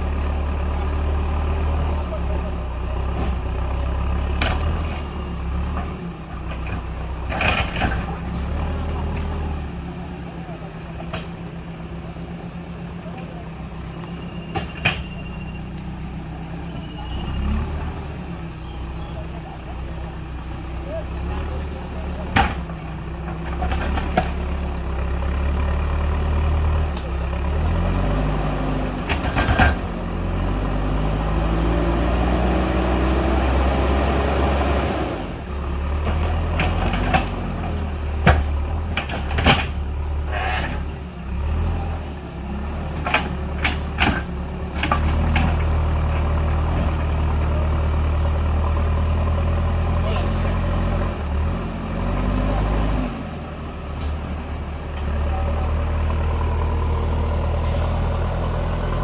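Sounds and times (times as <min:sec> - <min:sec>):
diesel engine revving: 0:00.0 - 0:59.0
sharp knocks and clunks: 0:22.2 - 0:24.4, 0:36.0 - 0:40.0.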